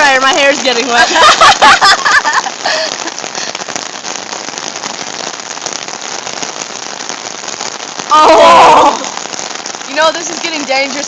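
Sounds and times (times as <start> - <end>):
heavy rain pouring: 0.0 - 11.0
person calling out: 8.1 - 9.1.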